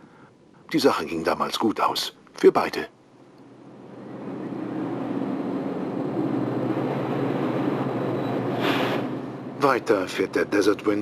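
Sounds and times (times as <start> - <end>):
passenger train rumble: 3.1 - 11.0.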